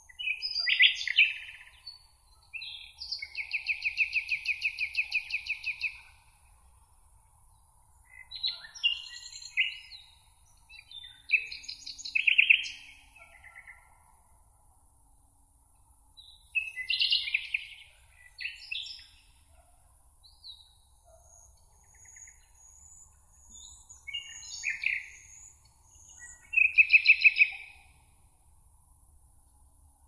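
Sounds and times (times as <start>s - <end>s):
faint steady hiss: 0.0s - 30.0s
songbirds chirping and warbling: 20.3s - 28.0s.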